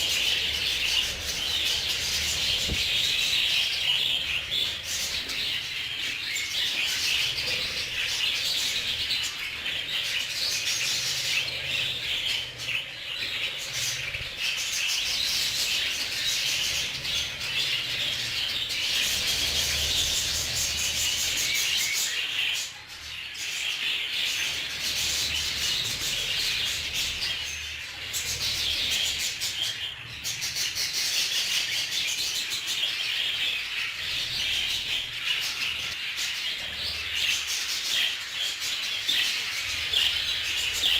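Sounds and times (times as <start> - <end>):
budgerigars chattering: 0.0 - 40.9.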